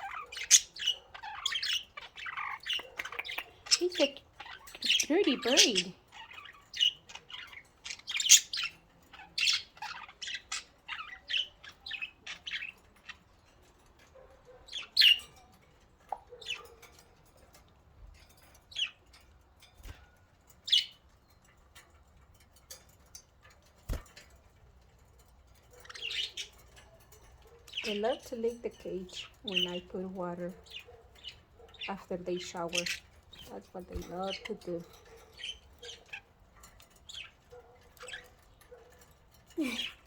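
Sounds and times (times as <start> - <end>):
budgerigars chirping: 0.0 - 13.5, 14.6 - 15.4, 16.1 - 16.9, 25.6 - 40.0.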